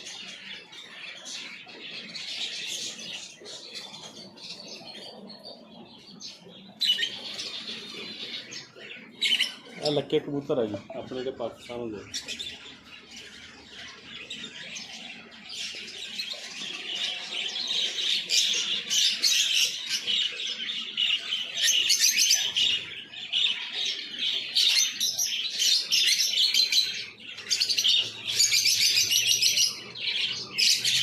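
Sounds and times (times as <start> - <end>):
caged birds chirping: 0.0 - 31.0.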